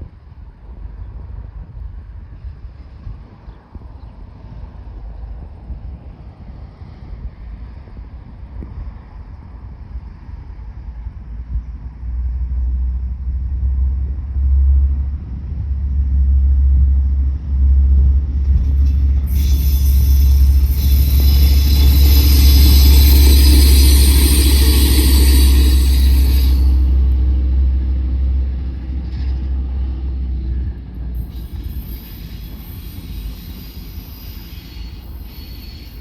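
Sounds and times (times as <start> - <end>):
locomotive rumbling past: 8.9 - 36.0
steady ringing tones: 18.9 - 27.4
loud high-pitched hiss: 19.1 - 27.2, 31.3 - 36.0.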